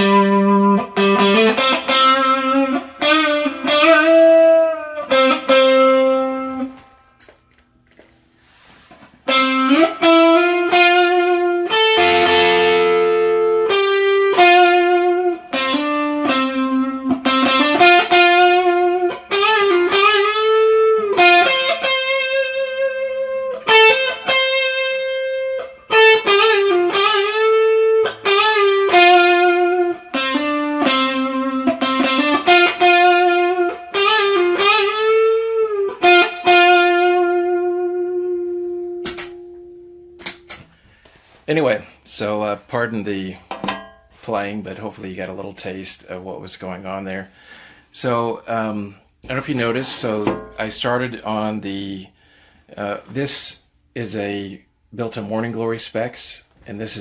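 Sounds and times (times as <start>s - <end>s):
overdriven electric guitar melody: 9.4s - 40.6s
strummed guitar chord: 12.0s - 14.5s.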